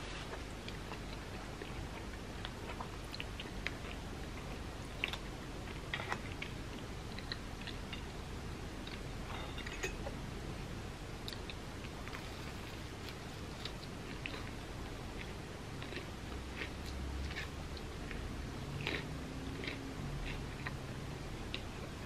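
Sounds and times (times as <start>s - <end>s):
person chewing sandwich: 11.2s - 18.2s, 18.8s - 20.8s.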